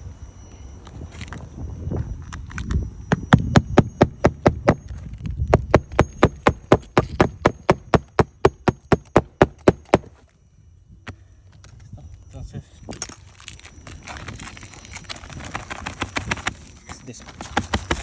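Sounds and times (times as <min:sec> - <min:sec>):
rapid tapping on hard surface: 0:03.4 - 0:04.8, 0:05.5 - 0:10.1.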